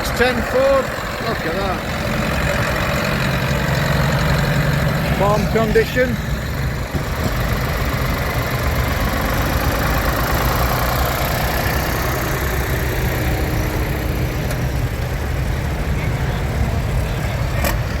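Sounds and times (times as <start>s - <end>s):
tractor engine idling: 0.0s - 18.0s.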